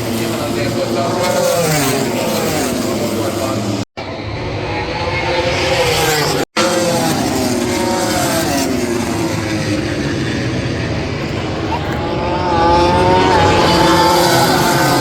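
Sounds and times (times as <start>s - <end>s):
racing motorcycle engines shrieking: 0.0s - 15.0s.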